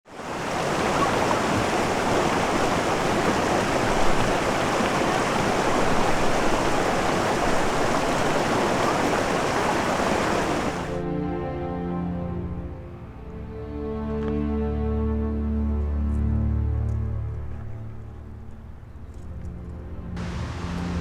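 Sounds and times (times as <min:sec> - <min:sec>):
fast-flowing water rushing: 0:00.1 - 0:11.0.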